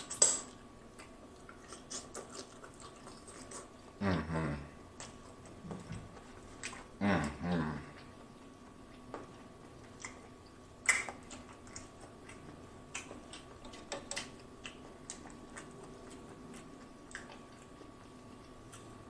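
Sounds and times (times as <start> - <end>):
close chewing mouth smacks: 0.0 - 4.0, 4.9 - 7.0, 7.8 - 19.0.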